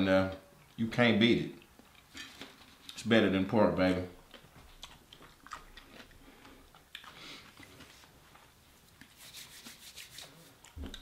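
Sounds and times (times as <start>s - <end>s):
people chewing: 4.2s - 9.2s, 10.6s - 11.0s.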